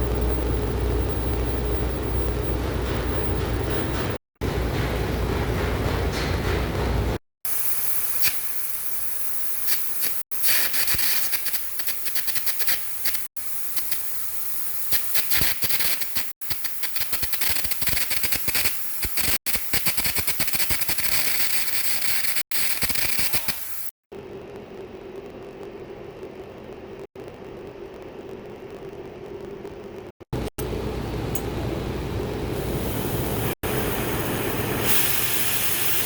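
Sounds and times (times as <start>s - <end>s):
welding arc sizzling and popping: 6.7s - 30.7s, 32.5s - 36.0s.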